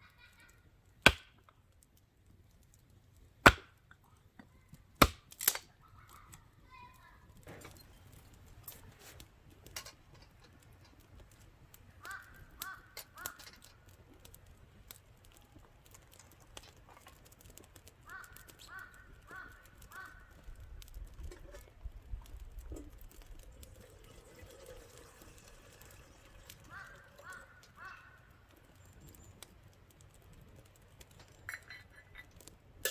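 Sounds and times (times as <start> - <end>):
crow cawing: 12.0 - 13.7, 18.0 - 20.4, 26.6 - 28.4.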